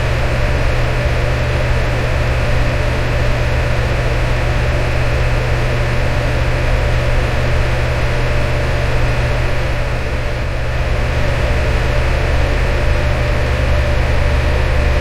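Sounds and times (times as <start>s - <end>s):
low motor hum: 9.4s - 15.0s.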